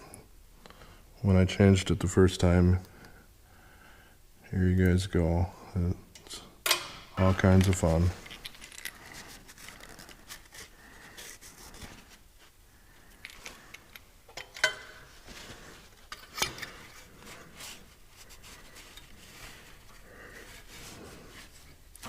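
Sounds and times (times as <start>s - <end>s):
small metal clicks and scrapes: 7.4s - 10.6s.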